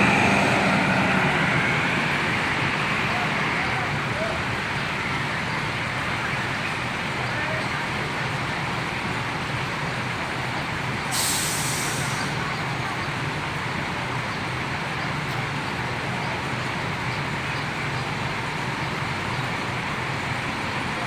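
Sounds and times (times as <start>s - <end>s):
diesel engine idling: 0.0s - 21.0s
air brake hiss: 11.1s - 12.4s.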